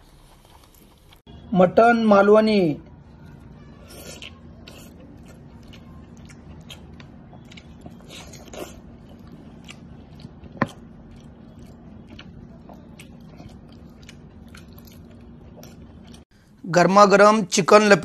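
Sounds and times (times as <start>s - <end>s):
steady low hum: 0.0s - 16.6s
man chewing and lip smacking: 3.8s - 16.2s.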